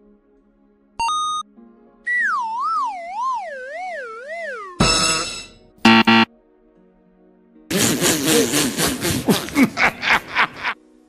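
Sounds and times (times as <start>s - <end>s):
falling wobbly electronic whistle: 2.1s - 6.3s.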